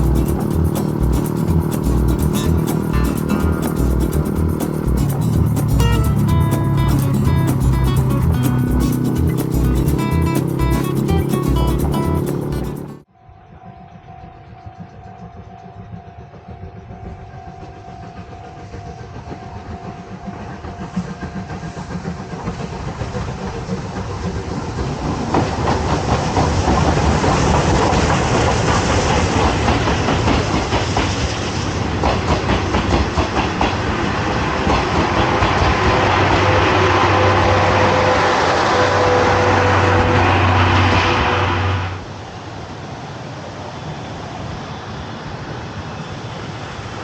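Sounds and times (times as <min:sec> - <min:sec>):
train wheels clattering on track: 0:00.0 - 0:12.9, 0:16.4 - 0:42.0.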